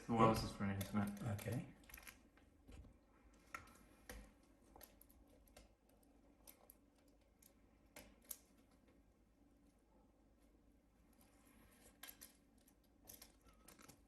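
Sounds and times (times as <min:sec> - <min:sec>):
faint clicks and taps: 0:00.3 - 0:09.7.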